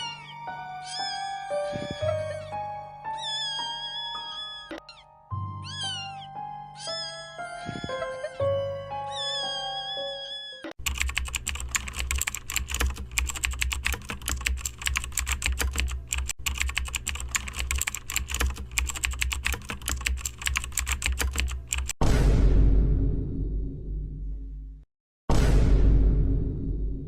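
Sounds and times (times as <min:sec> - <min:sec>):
meow-like sound: 0:00.0 - 0:10.7
fast keyboard typing: 0:10.8 - 0:22.0.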